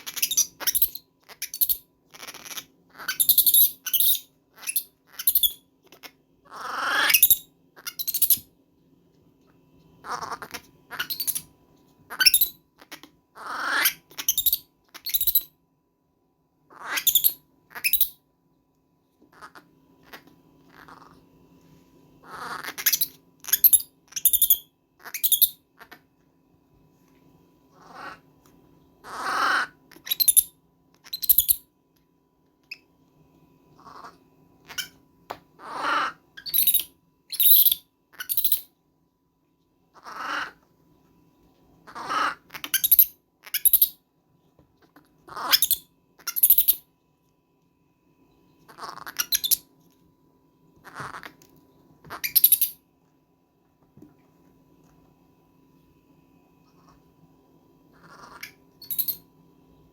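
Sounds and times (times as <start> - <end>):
baby monkey screaming: 0.0 - 8.4, 10.0 - 11.5, 12.1 - 15.4, 16.7 - 18.1, 22.2 - 26.0, 27.7 - 28.2, 29.0 - 31.6, 33.8 - 35.0, 35.6 - 38.7, 40.0 - 40.6, 41.9 - 44.0, 45.3 - 46.8, 48.7 - 49.7, 52.1 - 52.8, 58.0 - 59.2.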